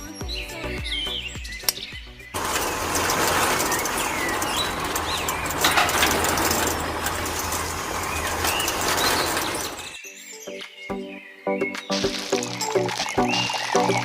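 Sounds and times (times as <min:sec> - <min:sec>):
music: 0:00.0 - 0:02.4, 0:10.0 - 0:14.0
small birds chirping: 0:00.0 - 0:14.0.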